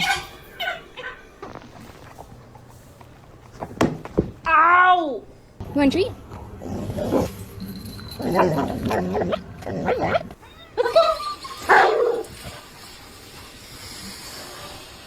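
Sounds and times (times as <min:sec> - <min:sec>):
dog howling: 0:06.2 - 0:11.1
dog barking: 0:11.7 - 0:12.3.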